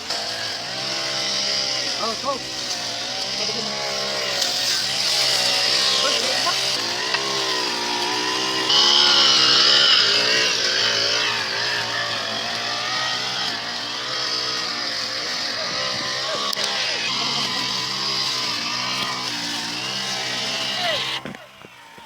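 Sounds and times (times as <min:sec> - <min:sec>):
motor running steadily: 0:00.0 - 0:22.0.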